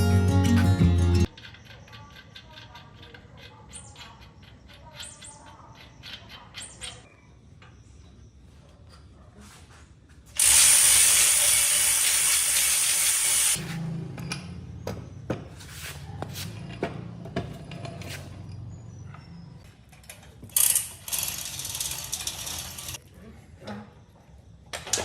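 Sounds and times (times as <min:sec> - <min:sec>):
ratchet wrench clicking: 0:10.4 - 0:13.6, 0:20.6 - 0:23.0.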